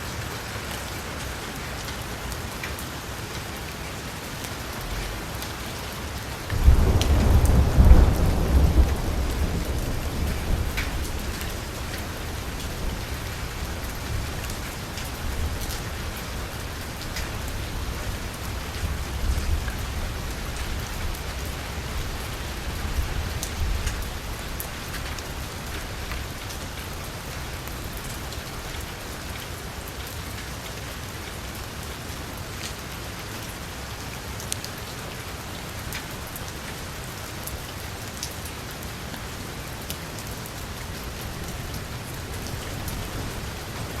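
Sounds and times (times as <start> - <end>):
heavy rain on car roof: 0.0 - 44.0
low thunder rumble: 6.5 - 24.6.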